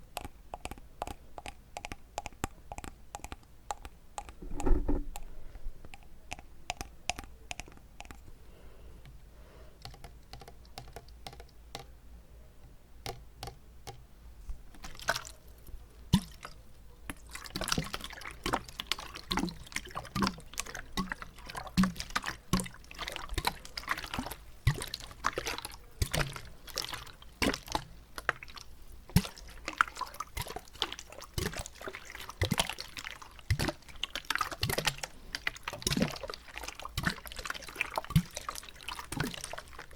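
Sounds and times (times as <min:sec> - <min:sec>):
wet mouth clicks and smacks: 0:00.0 - 0:05.3, 0:05.9 - 0:08.3.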